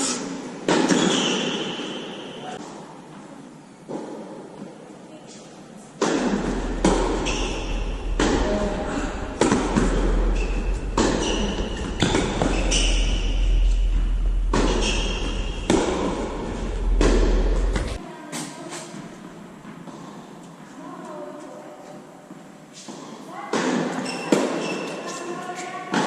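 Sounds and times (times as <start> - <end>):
shoe squeaks: 0.9 - 2.5, 6.9 - 8.1, 10.1 - 15.7, 24.0 - 25.8
tennis ball struck by rackets: 6.0 - 8.5, 14.4 - 17.6
ball bouncing on court: 6.0 - 18.0.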